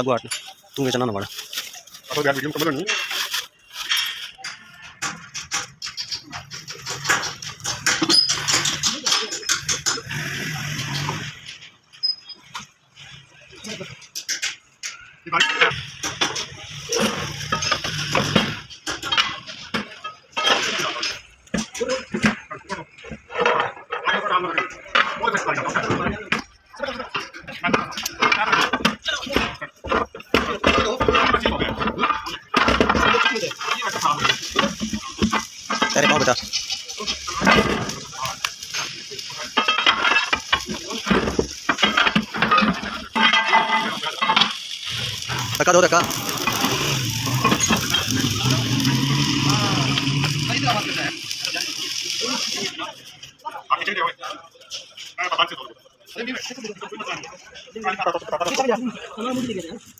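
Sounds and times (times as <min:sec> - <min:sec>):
steel tools clanking: 0:00.0 - 0:22.2, 0:24.7 - 0:52.8
metal clinking and knocking: 0:02.6 - 0:10.2, 0:27.7 - 0:48.5.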